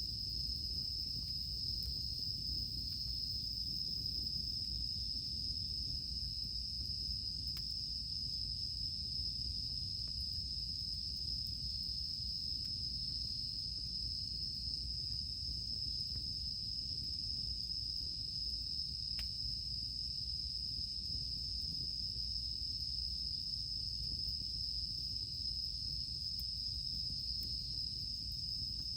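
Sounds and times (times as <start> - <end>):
cicadas droning: 0.0 - 28.9
campfire pops: 24.0 - 28.9.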